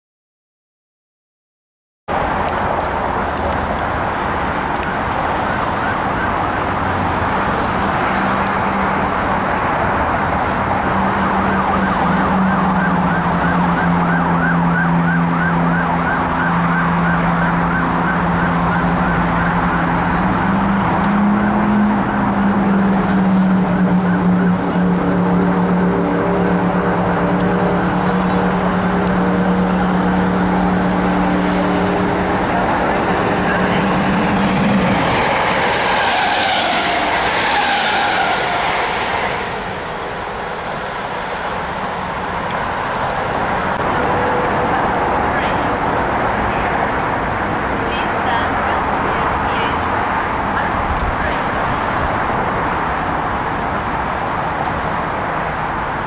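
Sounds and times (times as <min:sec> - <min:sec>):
steady rushing noise: 0:17.5 - 0:54.1
electric train approaching: 0:19.1 - 0:47.8.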